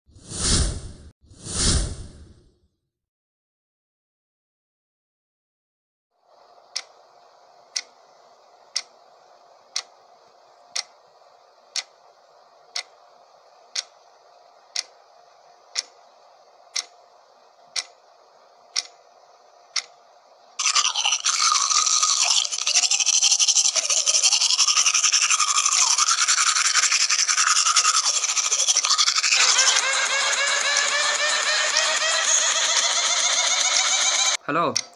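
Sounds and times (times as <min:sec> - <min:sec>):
faint hum: 0:06.2 - 0:34.9
clock ticking: 0:07.7 - 0:07.9, 0:08.7 - 0:08.9, 0:15.7 - 0:16.0, 0:16.7 - 0:17.0, 0:17.8 - 0:18.0, 0:18.8 - 0:19.0
toothbrush scrubbing teeth: 0:20.6 - 0:34.3.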